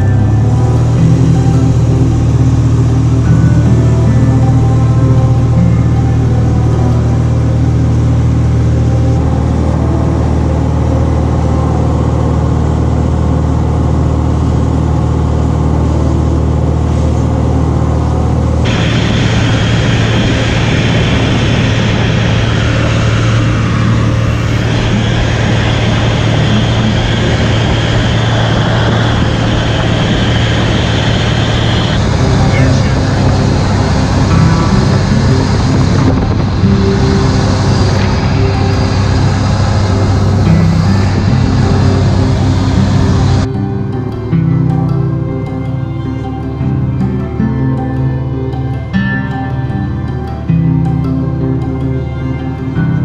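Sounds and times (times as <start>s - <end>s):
airplane engine droning: 0.0s - 53.0s
strong hiss: 18.6s - 43.5s.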